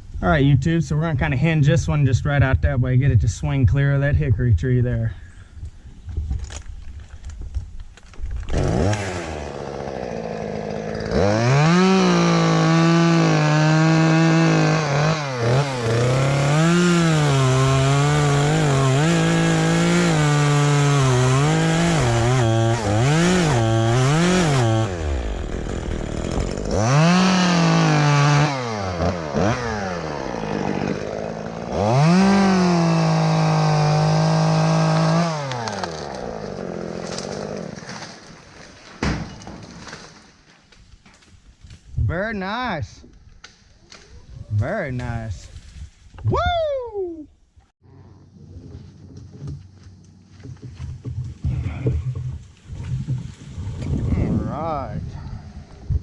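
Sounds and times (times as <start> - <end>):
chainsaw cutting wood: 8.0 - 40.4.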